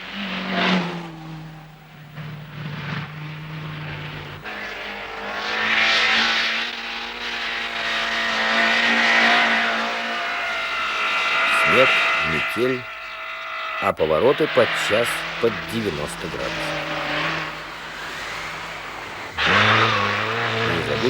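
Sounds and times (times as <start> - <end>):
car flashing past: 0.0 - 21.0
rally car engine: 0.0 - 21.0
tyres on snow: 0.0 - 21.0.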